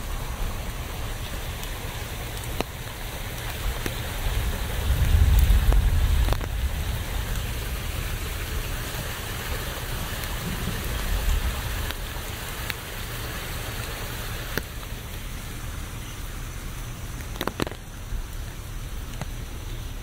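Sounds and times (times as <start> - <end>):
sharp drips: 0.0 - 20.0
steady rain: 0.0 - 20.0
low rumble: 3.4 - 12.6.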